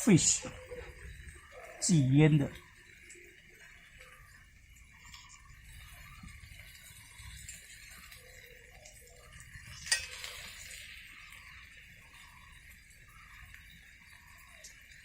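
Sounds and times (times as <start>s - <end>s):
utensils stirring against cookware: 9.6s - 10.9s.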